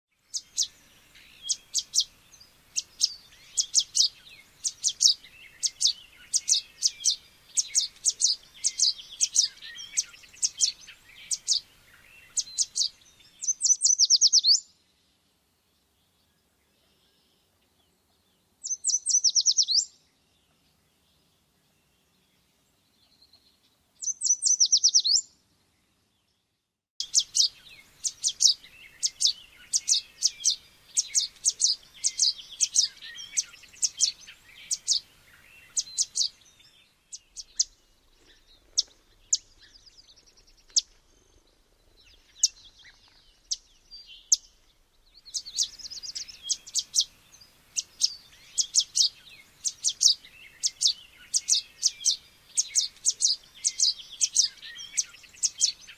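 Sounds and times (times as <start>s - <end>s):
birds chirping: 0.2s - 15.2s, 15.8s - 55.9s
loud bird trill: 0.3s - 2.2s, 2.8s - 14.6s, 18.6s - 19.9s, 24.0s - 25.2s, 27.0s - 37.9s, 45.2s - 47.2s, 47.8s - 55.9s.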